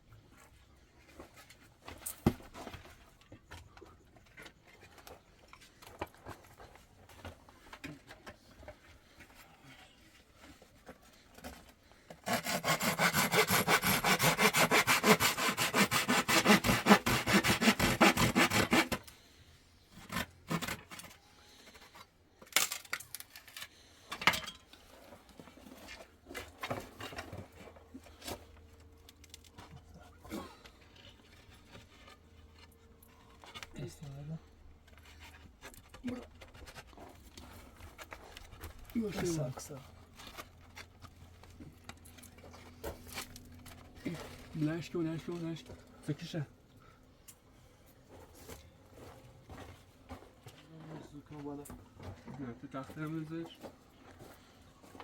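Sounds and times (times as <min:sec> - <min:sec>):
hand saw cutting wood: 0:12.1 - 0:19.1, 0:20.0 - 0:21.0.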